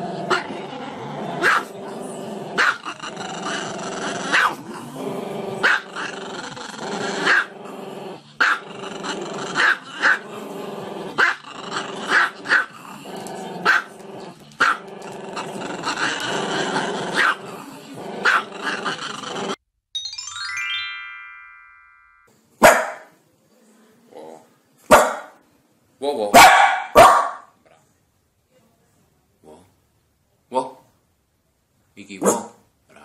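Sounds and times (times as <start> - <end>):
dog yipping: 26.4 - 27.4.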